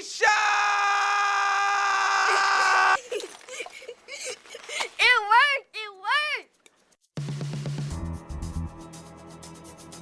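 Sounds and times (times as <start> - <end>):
person screaming: 0.0 - 3.0.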